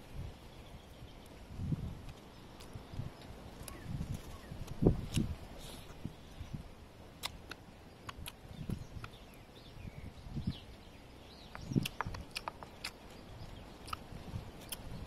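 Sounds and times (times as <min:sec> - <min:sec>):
chewing and mouth smacking: 0:07.2 - 0:09.2, 0:11.5 - 0:15.0.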